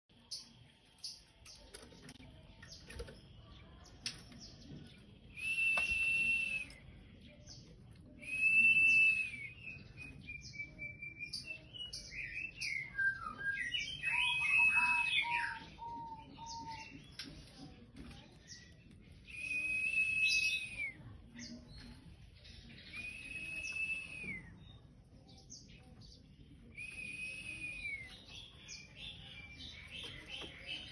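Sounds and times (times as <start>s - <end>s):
bird whistling song: 5.2s - 17.2s, 18.4s - 30.9s.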